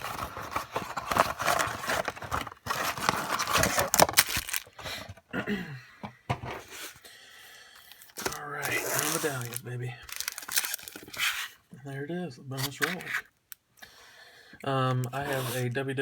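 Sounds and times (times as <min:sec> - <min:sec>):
wrapper crinkling and tearing: 0:00.0 - 0:05.0, 0:08.0 - 0:11.4
cards being handled: 0:00.0 - 0:05.1, 0:07.8 - 0:11.5, 0:12.6 - 0:13.3.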